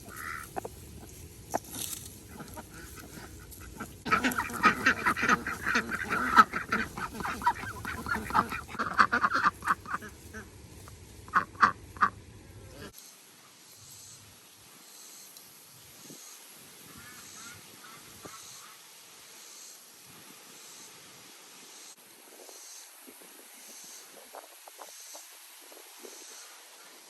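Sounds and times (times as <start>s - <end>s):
poultry calling: 0.0s - 10.5s, 11.3s - 12.9s.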